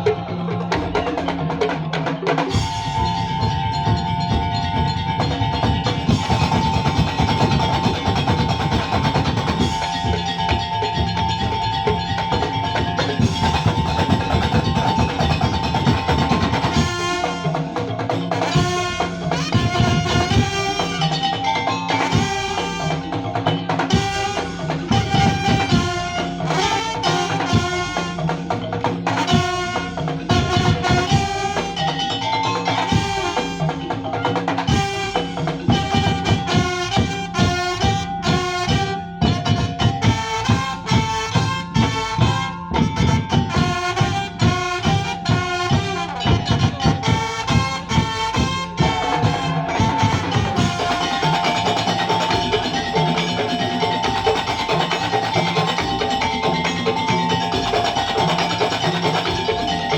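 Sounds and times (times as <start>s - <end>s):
driving drums: 0.0s - 59.9s
held melody line: 0.0s - 59.9s
wooden percussion: 0.0s - 59.9s.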